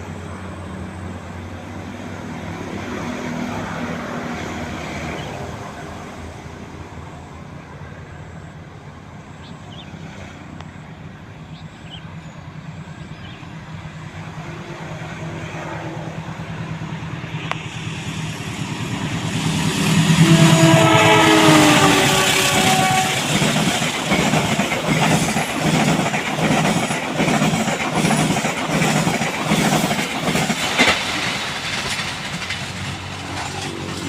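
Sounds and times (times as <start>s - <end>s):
diesel train engine drone: 0.0s - 34.0s
train horn: 19.8s - 23.8s.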